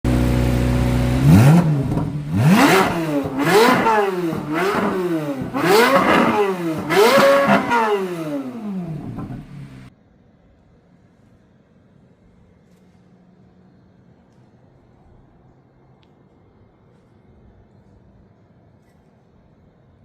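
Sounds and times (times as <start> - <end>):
car engine idling and revving: 0.0 - 9.9.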